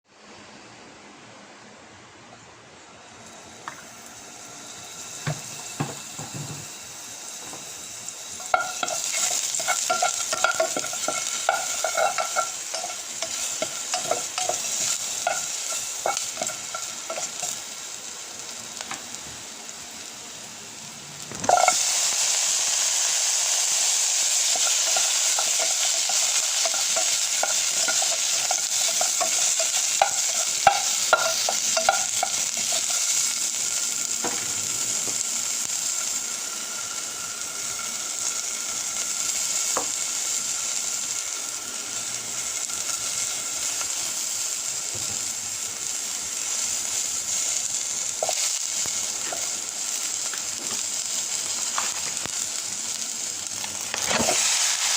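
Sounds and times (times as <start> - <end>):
food sizzling in a hot pan: 3.2 - 54.9
utensil scraping against pan: 8.4 - 17.6.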